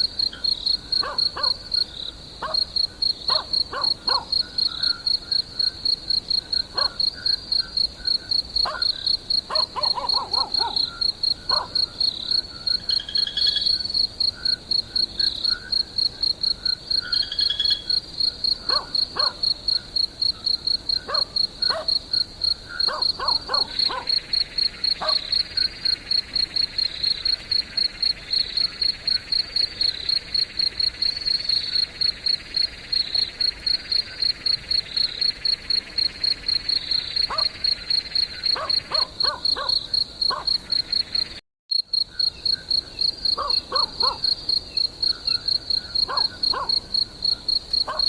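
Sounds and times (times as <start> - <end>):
crickets chirping: 0.0 - 48.0
insect trill: 0.0 - 48.0
dog yelping barks: 1.0 - 1.6, 2.4 - 2.7, 3.3 - 4.3, 6.7 - 7.0, 8.6 - 10.9, 11.5 - 11.8, 18.7 - 19.4, 21.1 - 22.0, 22.8 - 24.2, 25.0 - 25.3, 37.3 - 37.6, 38.5 - 40.6, 43.4 - 44.2, 46.1 - 46.8.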